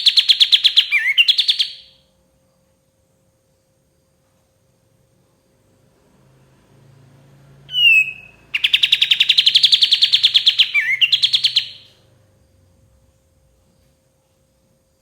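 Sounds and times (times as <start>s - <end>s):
bulbul singing: 0.0s - 2.0s, 7.7s - 12.0s.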